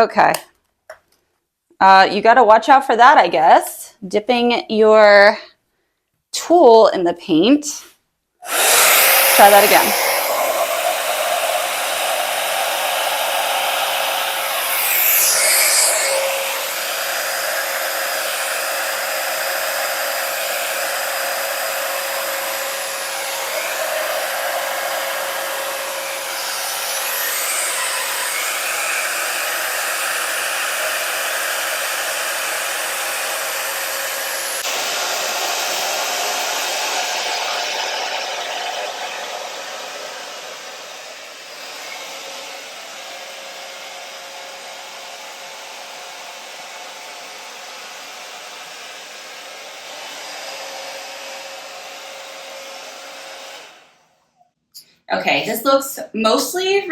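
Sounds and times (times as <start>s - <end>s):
hair dryer blowing: 8.4s - 54.1s.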